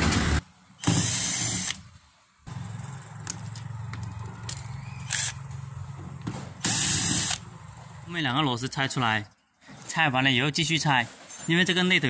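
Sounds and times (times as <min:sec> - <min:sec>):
cordless screwdriver whirring: 0:05.1 - 0:05.4, 0:06.6 - 0:07.4.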